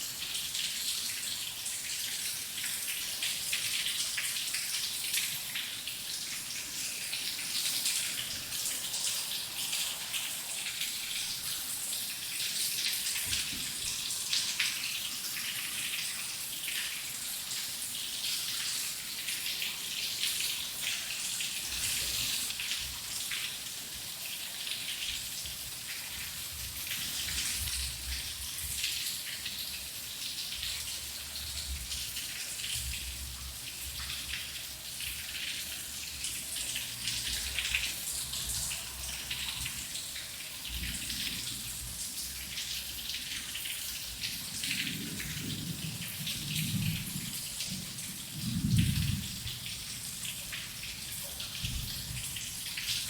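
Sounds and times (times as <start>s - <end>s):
rain falling: 0.0s - 53.0s.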